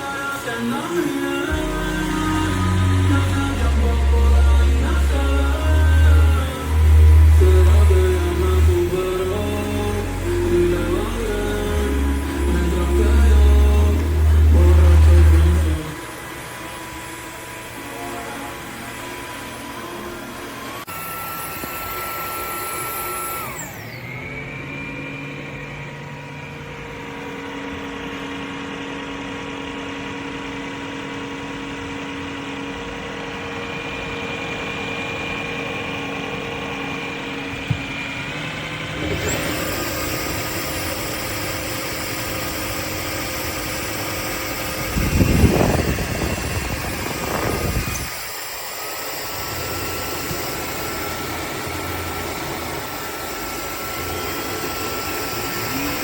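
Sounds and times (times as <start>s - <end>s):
vacuum motor running: 0.0s - 56.0s.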